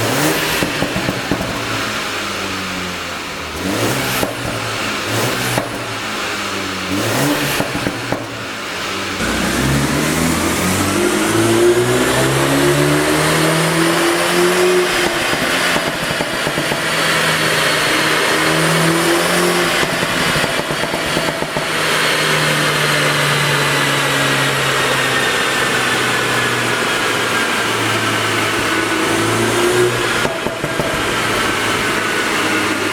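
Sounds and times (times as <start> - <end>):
car engine accelerating through gears: 0.0 - 32.9.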